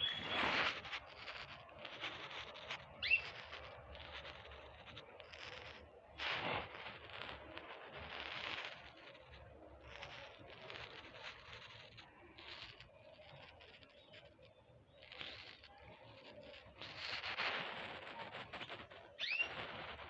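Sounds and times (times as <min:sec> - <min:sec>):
small birds chirping: 0:00.0 - 0:05.8, 0:09.9 - 0:20.0.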